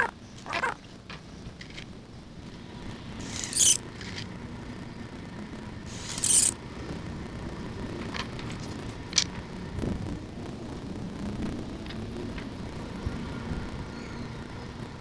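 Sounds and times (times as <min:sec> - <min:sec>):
short scrapes: 0:03.2 - 0:03.8, 0:05.9 - 0:06.6.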